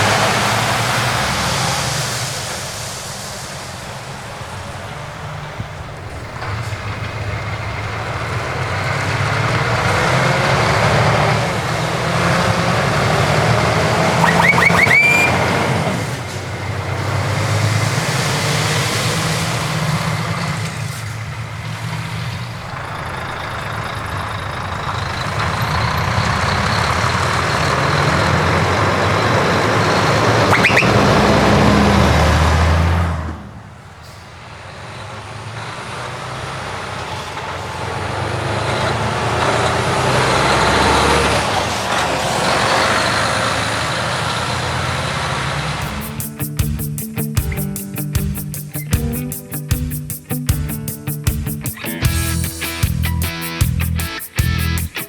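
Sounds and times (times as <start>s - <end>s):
heavy trucks driving past: 0.0s - 46.3s
rising whistles: 14.0s - 16.2s, 22.5s - 32.0s.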